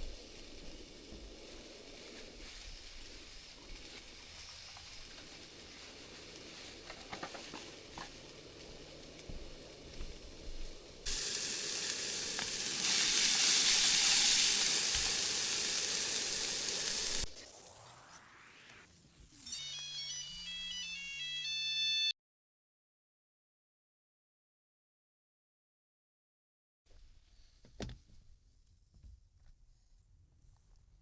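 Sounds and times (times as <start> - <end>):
loud sizzling hiss: 0.0 - 19.4.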